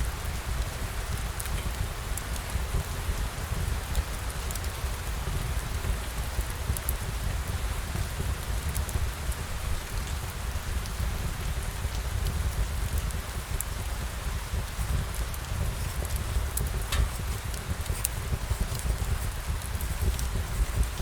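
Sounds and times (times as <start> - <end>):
steady rain falling: 0.0 - 21.0
faint ticks: 14.8 - 21.0.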